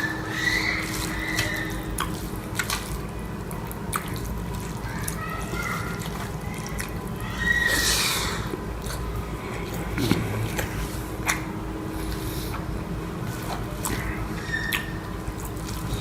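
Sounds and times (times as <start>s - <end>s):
person eating wet lip smacks: 1.3s - 3.0s, 10.0s - 11.5s.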